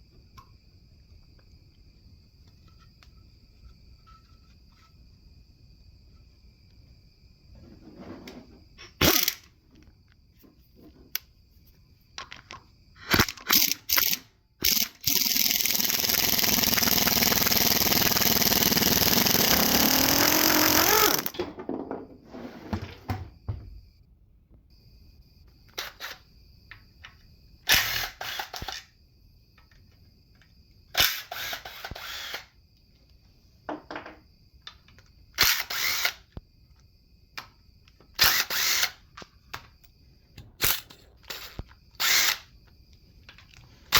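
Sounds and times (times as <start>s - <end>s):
power tool whirring: 13.5s - 21.4s, 31.0s - 32.5s, 35.4s - 36.2s, 38.2s - 39.0s, 41.3s - 42.5s.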